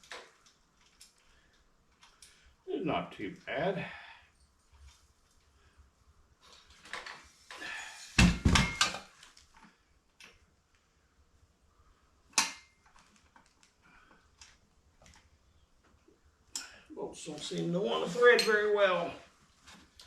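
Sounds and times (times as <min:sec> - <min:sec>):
metal tools clanking: 0:18.0 - 0:19.0.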